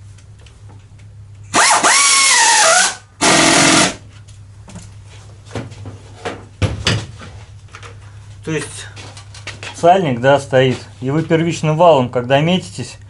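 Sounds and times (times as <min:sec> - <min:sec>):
power tool whine: 0:01.5 - 0:04.0.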